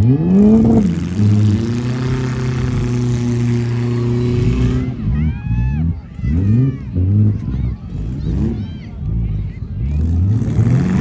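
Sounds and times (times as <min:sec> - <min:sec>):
car engine revving hard: 0:00.0 - 0:11.0.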